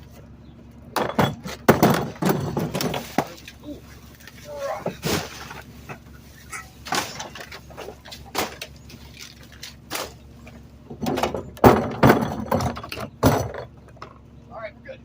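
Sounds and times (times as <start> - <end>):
truck engine running: 0.0 - 15.0
trash clattering into garbage truck: 0.9 - 14.2.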